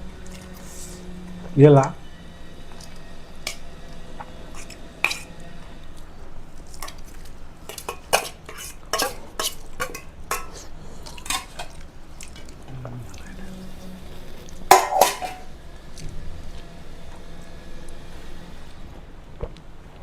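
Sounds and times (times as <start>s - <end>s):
plates and utensils clinking: 4.5s - 5.4s, 6.7s - 12.6s, 14.7s - 15.5s.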